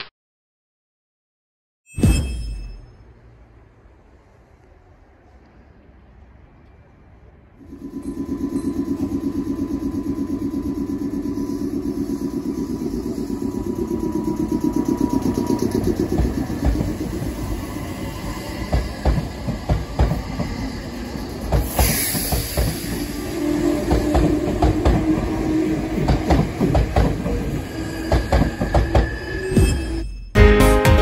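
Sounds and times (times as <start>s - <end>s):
train rumble: 3.0s - 29.8s
wheels clicking over rail joints: 18.6s - 23.0s
air hiss: 21.3s - 24.0s.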